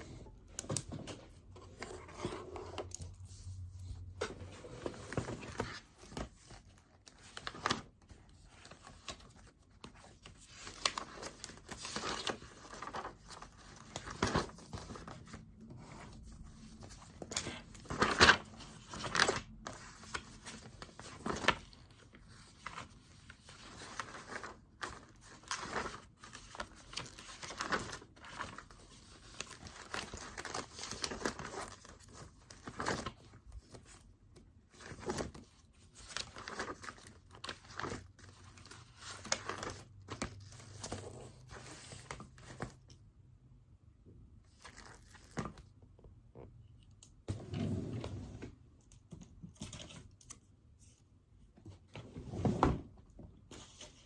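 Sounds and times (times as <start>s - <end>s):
paper rustling and crinkling: 0.0s - 34.0s, 34.6s - 42.8s.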